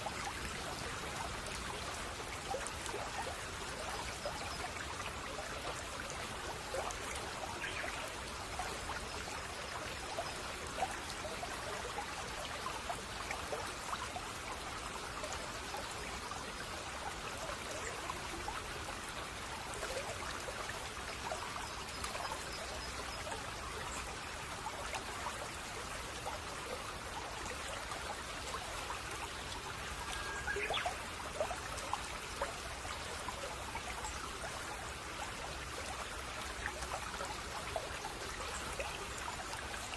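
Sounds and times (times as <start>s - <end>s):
stream babbling over stones: 0.0s - 39.9s
faint bird chirps: 30.0s - 31.0s.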